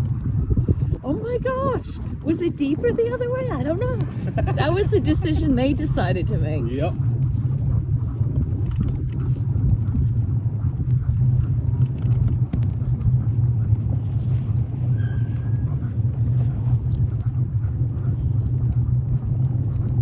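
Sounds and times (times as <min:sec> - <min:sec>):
sled running over snow: 0:00.0 - 0:20.0
wind buffeting microphone: 0:00.0 - 0:20.0
faint squeak: 0:14.7 - 0:15.9.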